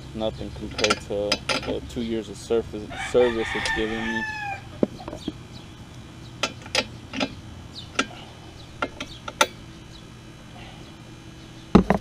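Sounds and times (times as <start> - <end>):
low hum: 0.0 - 12.0
tools clicking and tapping: 0.7 - 1.8, 6.4 - 8.1, 8.8 - 9.6.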